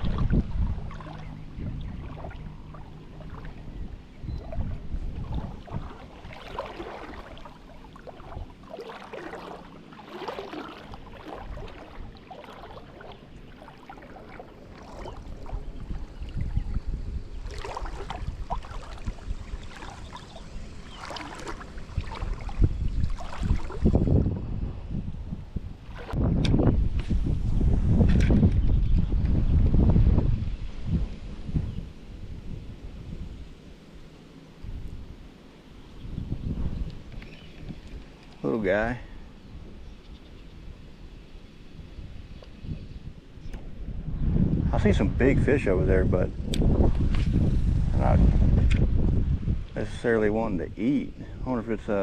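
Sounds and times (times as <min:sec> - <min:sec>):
water sloshing and splashing: 0:00.0 - 0:24.4, 0:25.3 - 0:27.2
river rumble: 0:00.0 - 0:28.3, 0:29.1 - 0:52.0.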